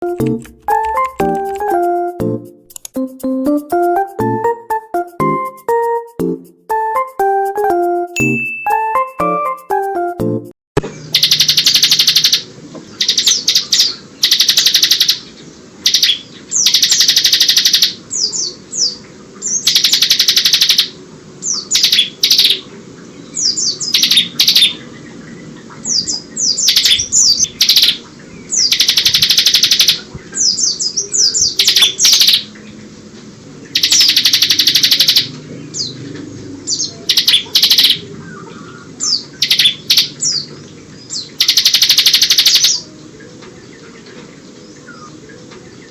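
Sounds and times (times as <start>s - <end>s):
bird singing trilling bursts: 10.8s - 32.9s, 33.6s - 43.2s.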